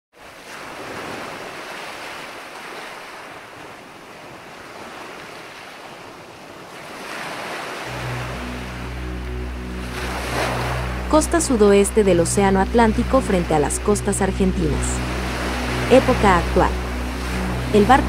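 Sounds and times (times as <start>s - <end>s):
ocean waves surging: 0.2s - 18.0s
low hum: 7.9s - 18.0s.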